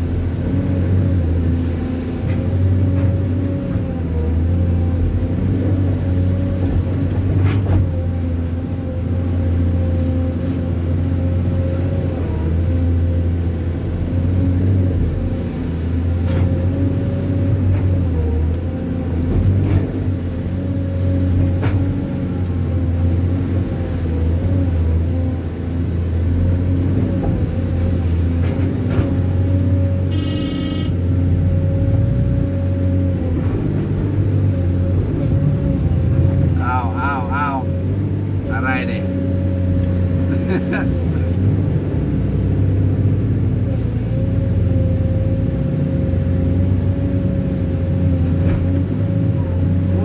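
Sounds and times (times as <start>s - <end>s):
vehicle engine running: 12.6s - 50.0s.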